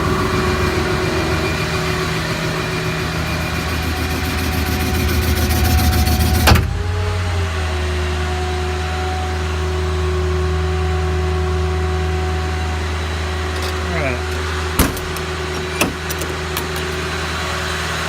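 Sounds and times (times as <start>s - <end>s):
hydraulic crane rattling whine: 0.0s - 18.0s
steady running hum: 0.0s - 18.0s
sharp clunk: 6.4s - 6.9s, 13.6s - 17.0s.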